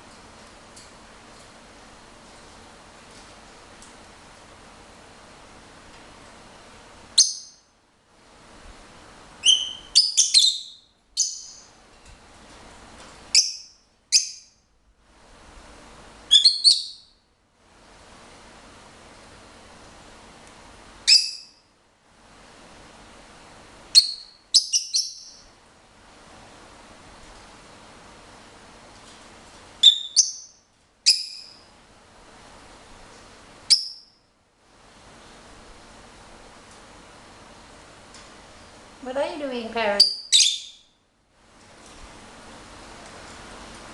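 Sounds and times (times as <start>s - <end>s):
lovebird chirping: 7.2s - 7.7s, 9.4s - 11.8s, 13.3s - 14.6s, 16.3s - 17.2s, 21.0s - 21.6s, 23.9s - 25.5s, 29.8s - 31.7s, 33.7s - 34.2s, 40.0s - 41.0s.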